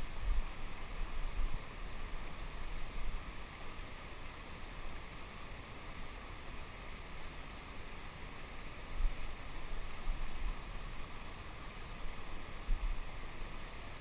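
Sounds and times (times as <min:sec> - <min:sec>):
river water rushing over rocks: 0:00.0 - 0:14.0.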